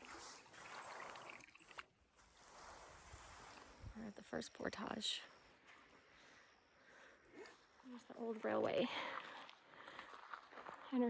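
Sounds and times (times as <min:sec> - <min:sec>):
canoe paddle swishing through water: 0:00.0 - 0:03.9.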